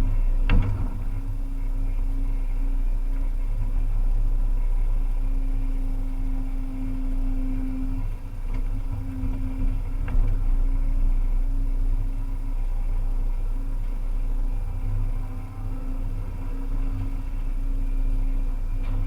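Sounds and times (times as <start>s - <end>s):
excavator diesel engine drone: 0.0s - 19.0s
humming tone: 12.4s - 19.0s.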